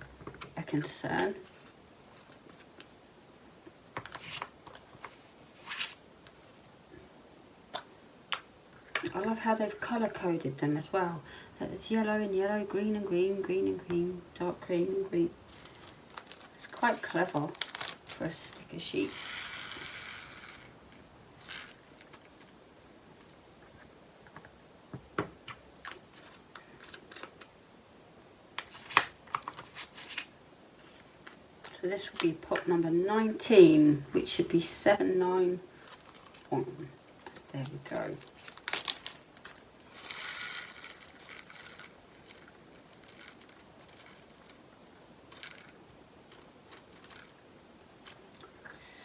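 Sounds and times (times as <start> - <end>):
beads pouring into plastic pot: 15.4 - 22.0, 39.8 - 44.6.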